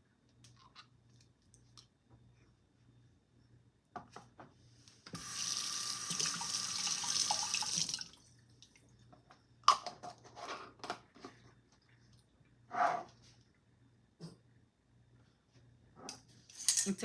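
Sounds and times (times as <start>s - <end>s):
water tap running: 5.2s - 8.2s.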